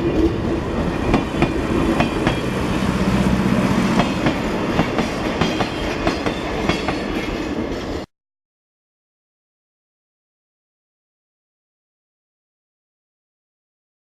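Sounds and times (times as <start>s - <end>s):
train rumbling on rails: 0.0s - 8.1s.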